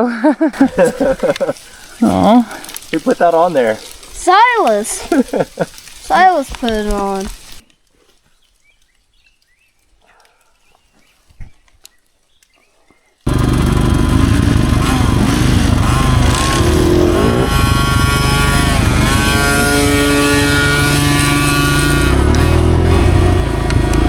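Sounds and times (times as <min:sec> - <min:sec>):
dirt bike engine revving: 0:00.6 - 0:07.4, 0:13.3 - 0:24.0.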